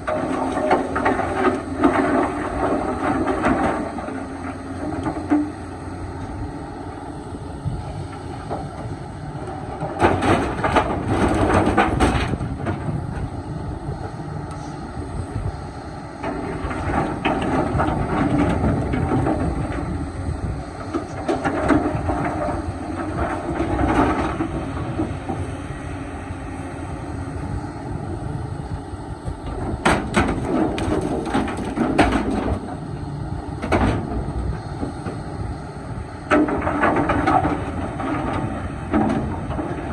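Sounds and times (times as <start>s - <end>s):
excavator diesel engine running: 0.0s - 39.9s
loud clattering and knocking: 8.2s - 13.0s, 29.5s - 32.8s, 33.6s - 34.2s, 36.3s - 39.9s.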